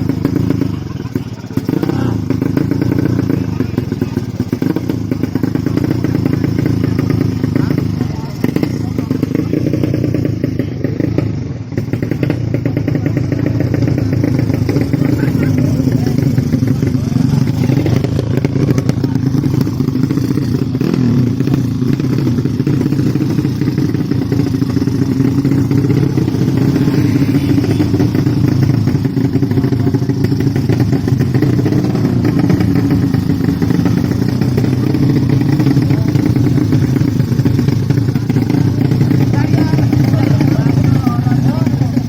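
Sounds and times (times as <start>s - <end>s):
motorcycle engines running: 0.0s - 42.0s.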